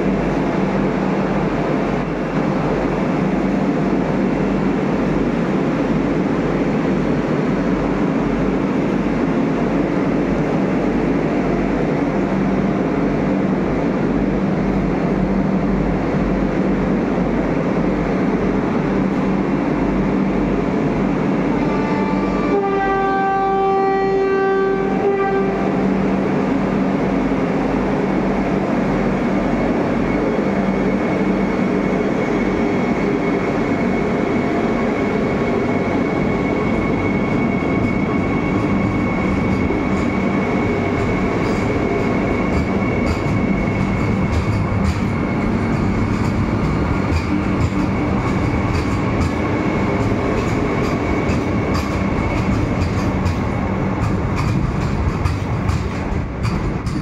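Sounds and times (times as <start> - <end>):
electric train rumble and hum: 0.0 - 57.0
train horn: 21.5 - 26.0.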